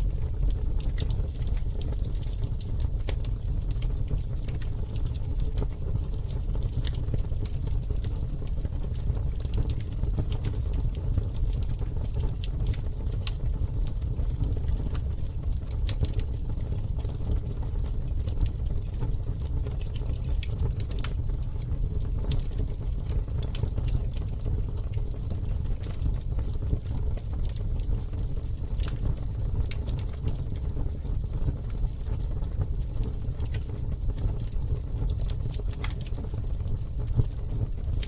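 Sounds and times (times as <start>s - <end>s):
steady low rumble: 0.0s - 4.3s
campfire pops and snaps: 15.6s - 30.7s, 32.0s - 38.0s.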